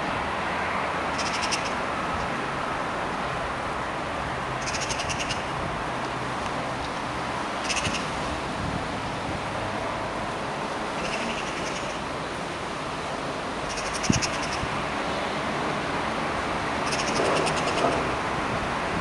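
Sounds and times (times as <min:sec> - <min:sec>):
bird rattling chatter: 0:07.6 - 0:08.0.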